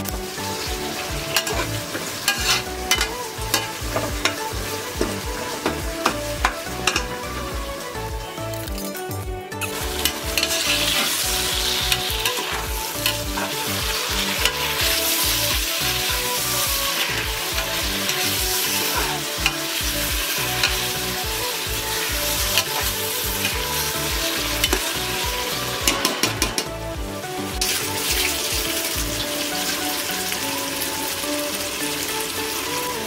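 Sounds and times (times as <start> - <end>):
tomatoes sizzling in hot oil: 0.0 - 33.0
metal spatula scraping cooker: 1.3 - 4.4.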